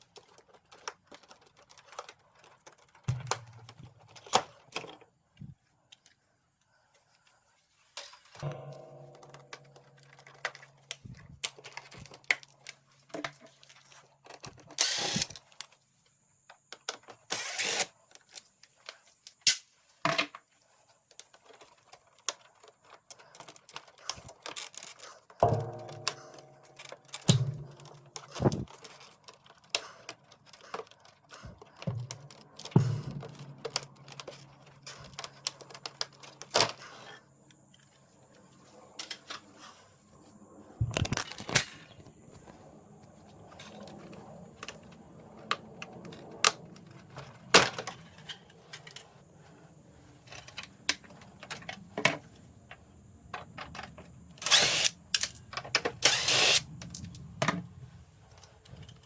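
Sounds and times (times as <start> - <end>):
plastic and metal parts rattling: 0.0 - 6.2, 8.0 - 15.8, 21.1 - 37.2.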